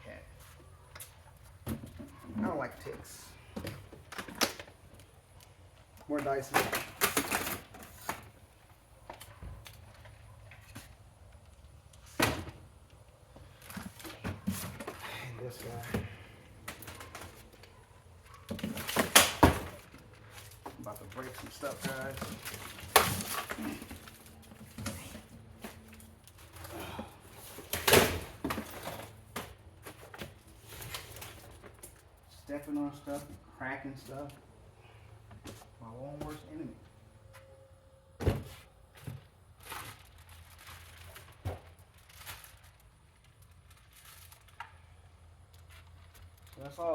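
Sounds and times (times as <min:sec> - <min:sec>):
plastic cracking underfoot: 0:18.6 - 0:25.0.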